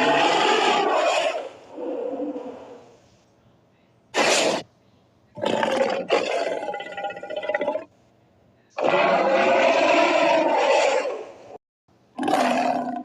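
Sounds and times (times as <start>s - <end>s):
monster roars: 0.0s - 1.5s, 8.8s - 11.2s.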